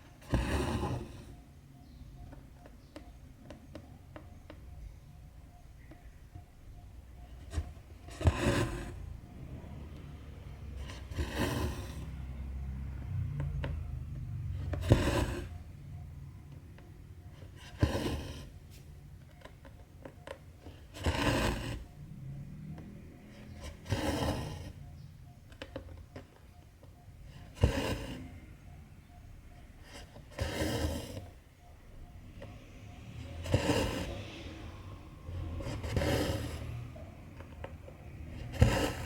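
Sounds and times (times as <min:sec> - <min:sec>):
thread rasping through fabric: 0:35.4 - 0:39.0.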